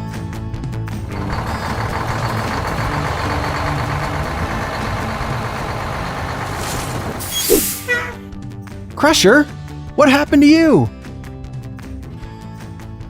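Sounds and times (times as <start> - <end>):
heavy truck engine rumbling: 0.9 - 8.3.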